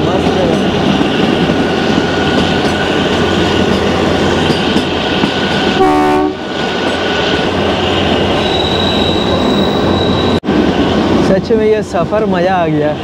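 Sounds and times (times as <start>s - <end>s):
train rolling noise: 0.0s - 13.0s
train horn blast: 5.8s - 6.5s.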